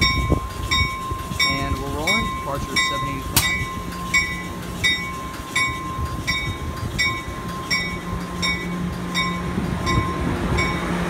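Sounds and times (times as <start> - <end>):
diesel train rumble: 0.0 - 11.0
train bell ringing: 0.0 - 11.0.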